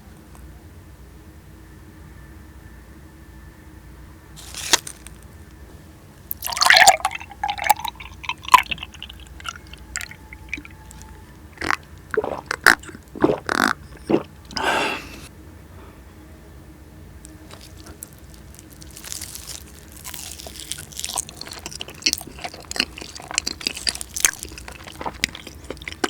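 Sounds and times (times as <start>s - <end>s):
wet squishing of cheesecake: 4.4s - 5.3s, 6.3s - 14.6s, 17.4s - 26.0s.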